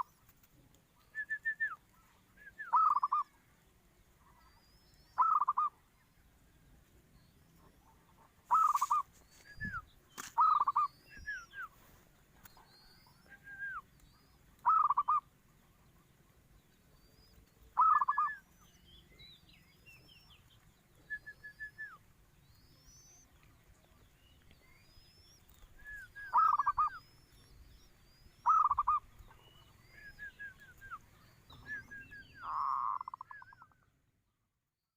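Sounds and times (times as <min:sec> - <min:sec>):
small birds chirping: 0:00.0 - 0:34.4
dove cooing: 0:01.4 - 0:03.3, 0:05.2 - 0:05.9, 0:07.6 - 0:09.8, 0:10.4 - 0:11.6, 0:12.6 - 0:16.4, 0:17.4 - 0:18.5, 0:24.9 - 0:33.8.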